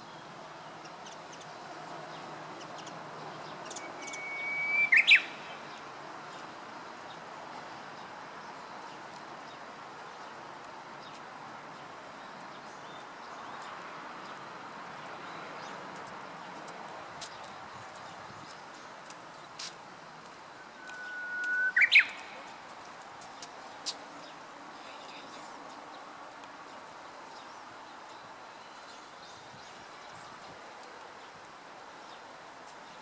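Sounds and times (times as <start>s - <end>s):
background hiss: 0.0s - 33.0s
bird whistling song: 3.7s - 5.6s, 20.6s - 22.5s.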